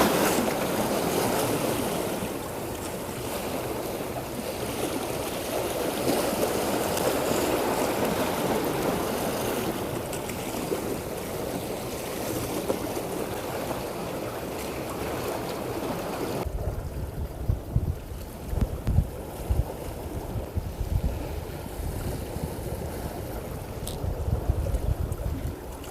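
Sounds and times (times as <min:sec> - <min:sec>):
wind buffeting microphone: 0:15.0 - 0:25.9.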